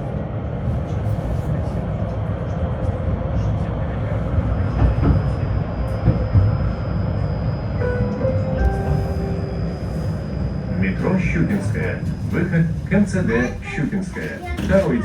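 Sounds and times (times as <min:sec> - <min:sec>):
tram rumbling on rails: 0:00.0 - 0:15.0
short chime: 0:07.8 - 0:10.6.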